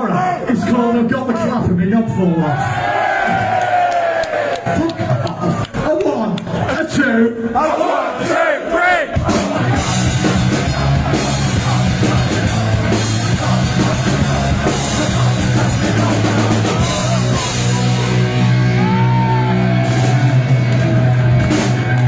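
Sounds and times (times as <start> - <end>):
thrash metal band playing: 9.2 - 22.0.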